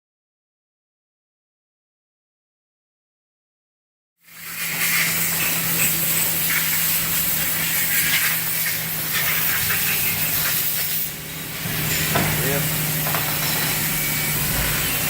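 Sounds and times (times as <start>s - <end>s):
milling machine hum and hiss: 4.3s - 15.0s.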